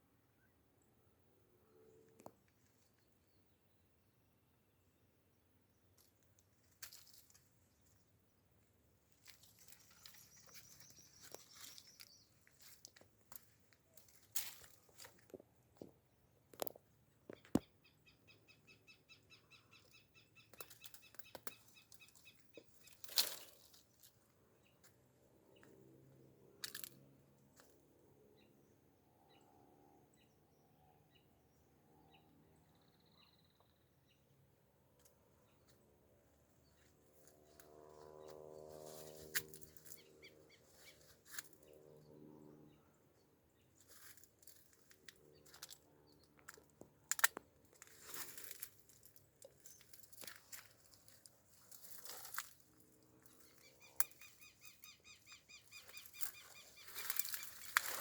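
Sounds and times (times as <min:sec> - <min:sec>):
faint bird chirps and trill: 0:16.5 - 0:24.0, 0:30.2 - 0:34.3, 0:36.7 - 0:42.1, 0:53.2 - 0:58.0
rustling: 0:47.7 - 0:53.6.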